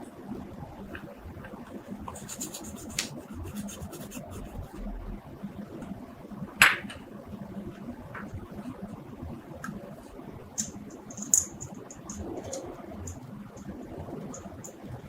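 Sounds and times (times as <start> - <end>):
light scratching and rubbing: 2.0 - 4.9.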